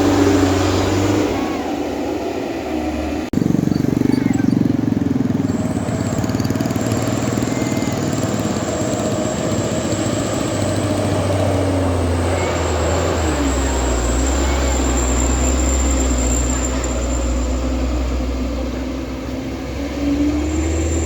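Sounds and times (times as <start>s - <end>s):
road noise: 0.0s - 21.0s
vehicle engine running: 0.0s - 21.0s.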